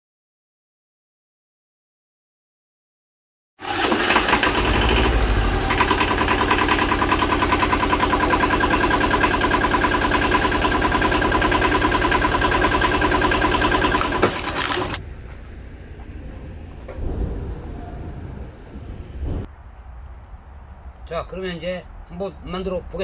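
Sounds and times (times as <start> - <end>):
tractor engine running: 3.6 - 17.2.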